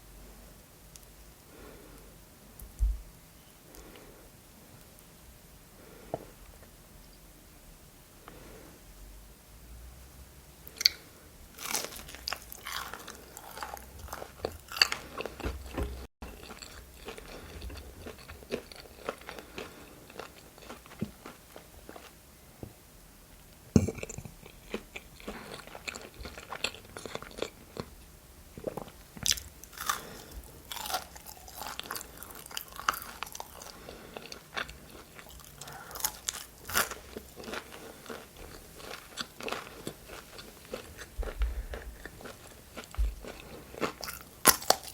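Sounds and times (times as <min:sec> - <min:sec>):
crunchy bites and chewing: 0:10.7 - 0:22.1, 0:28.6 - 0:44.9.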